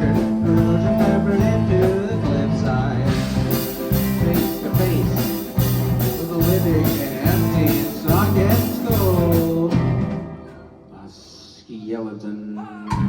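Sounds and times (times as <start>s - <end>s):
bass line: 0.0s - 10.4s
drum kit beat: 0.0s - 10.7s
electric guitar bending notes: 0.0s - 10.9s.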